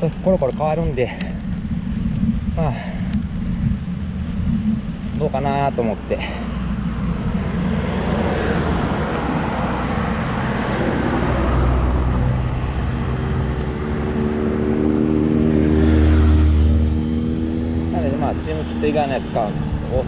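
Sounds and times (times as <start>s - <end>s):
bicycle road noise: 0.0s - 20.0s
motor vehicle engine approaching: 0.0s - 20.0s
wind rush: 0.9s - 18.7s.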